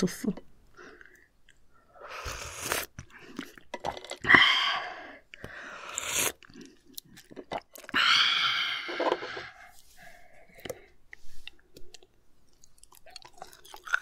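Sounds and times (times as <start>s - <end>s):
crunchy chewing of raw shellfish: 0.9s - 4.3s, 5.2s - 8.0s, 10.5s - 14.0s.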